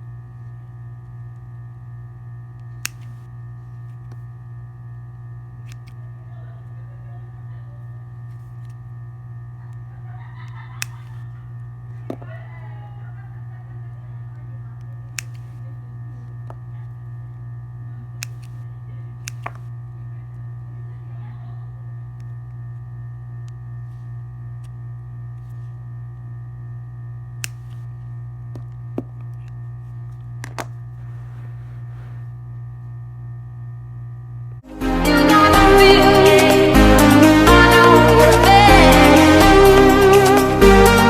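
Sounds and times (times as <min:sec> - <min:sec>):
low electrical hum: 0:00.0 - 0:41.0
sharp small clicks: 0:02.6 - 0:03.3, 0:10.8 - 0:11.2, 0:15.1 - 0:15.6, 0:18.2 - 0:18.6, 0:19.2 - 0:19.7, 0:27.4 - 0:27.9.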